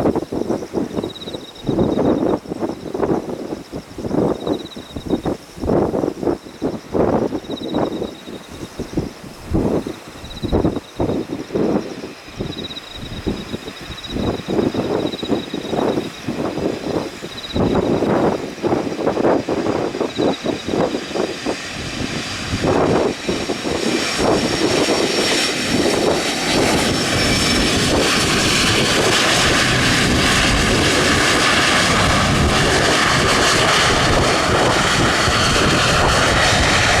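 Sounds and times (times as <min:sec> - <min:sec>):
jet engines roaring: 0:00.0 - 0:37.0
wind buffeting microphone: 0:00.0 - 0:37.0.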